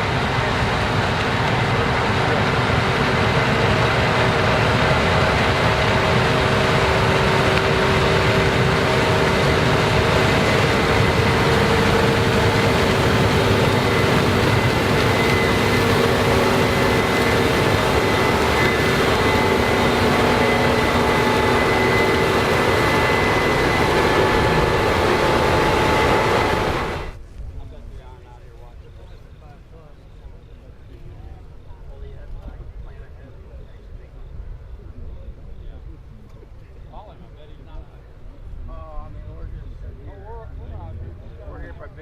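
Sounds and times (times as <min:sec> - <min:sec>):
combine harvester running: 0:00.0 - 0:27.2
high machine whine: 0:00.0 - 0:27.2.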